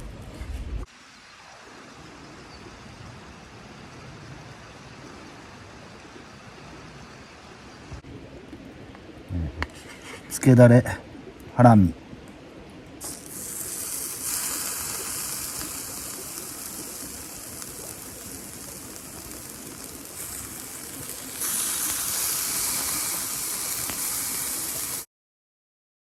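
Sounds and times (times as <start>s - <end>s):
steak sizzling on charcoal grill: 13.0s - 25.1s.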